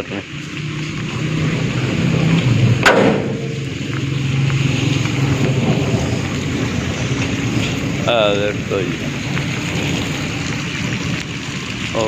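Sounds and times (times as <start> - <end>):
heavy rain falling: 0.0 - 12.0
sharp crack: 2.8 - 4.1.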